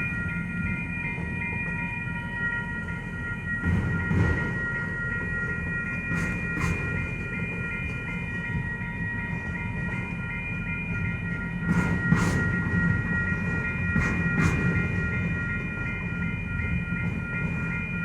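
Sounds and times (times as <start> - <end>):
high ringing tone: 0.0 - 5.9
freight train rumbling: 0.0 - 18.0.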